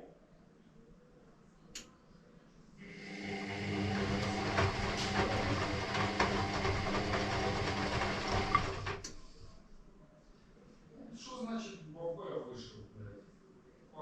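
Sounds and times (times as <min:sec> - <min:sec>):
washing machine motor hum: 0:02.8 - 0:09.7
laundry churning with light knocks: 0:03.9 - 0:09.6.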